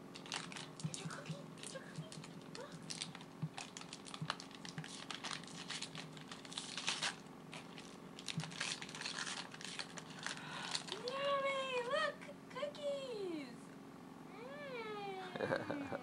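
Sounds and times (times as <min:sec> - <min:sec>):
packaging crinkling and tearing: 0:00.1 - 0:11.3.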